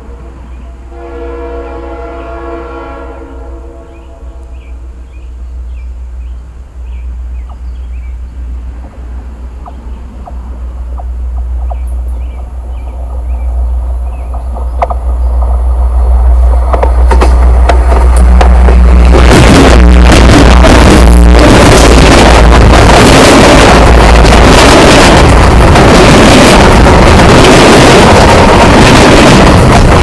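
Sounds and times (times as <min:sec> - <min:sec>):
freight train rumble: 0:00.0 - 0:30.0
wheels rattling on rails: 0:07.3 - 0:30.0.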